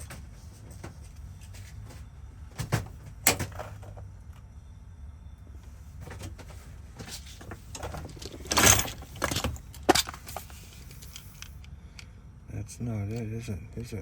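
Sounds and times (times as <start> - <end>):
keys rattling: 7.2 - 11.7
metal lock parts clicking: 7.8 - 11.7.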